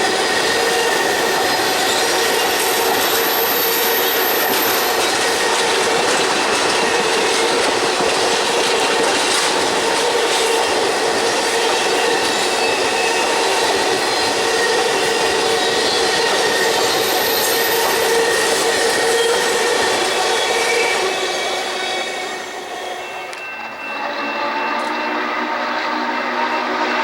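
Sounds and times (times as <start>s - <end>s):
wheel-on-rail noise: 0.0s - 27.0s
wheels squealing: 11.6s - 27.0s.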